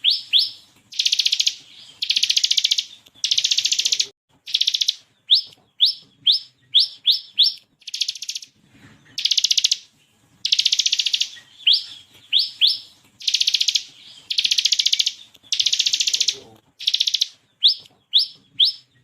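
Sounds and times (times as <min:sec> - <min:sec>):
bird rattling trills: 0:00.0 - 0:08.5, 0:09.2 - 0:18.8
bird singing rising notes: 0:00.0 - 0:19.0.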